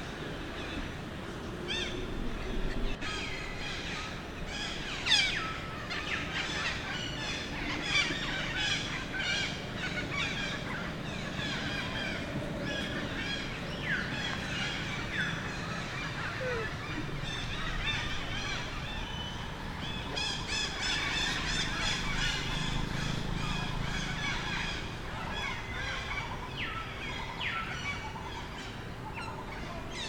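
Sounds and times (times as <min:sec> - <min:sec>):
baby monkey crying: 0:16.1 - 0:17.0.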